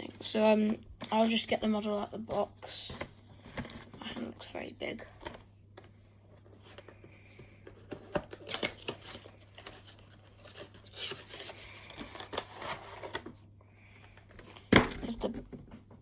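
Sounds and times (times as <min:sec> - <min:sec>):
cardboard packaging rustling: 0:06.3 - 0:13.4.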